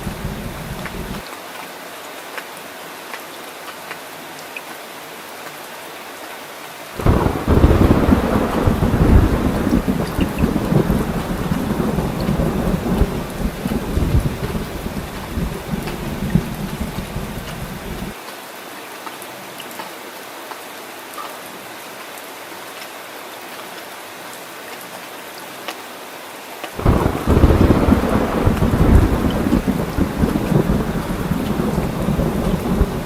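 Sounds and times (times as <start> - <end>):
thunder rumbling: 0.0 - 1.2, 7.0 - 18.2, 26.8 - 33.0
heavy rain falling: 0.0 - 19.0, 26.6 - 33.0.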